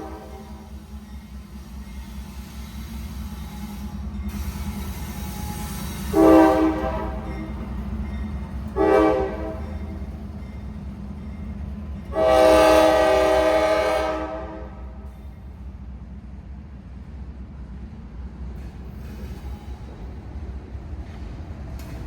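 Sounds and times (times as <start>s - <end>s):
locomotive air horn blasts: 0.0s - 0.8s, 5.3s - 7.4s, 8.7s - 9.8s, 12.1s - 15.1s
diesel train rumbling past: 0.0s - 22.0s.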